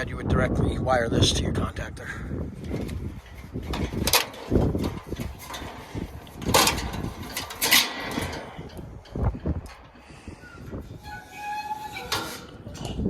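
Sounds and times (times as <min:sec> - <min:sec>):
wind rumble on microphone: 0:00.0 - 0:13.0
clicks and knocks of tools: 0:02.7 - 0:10.2.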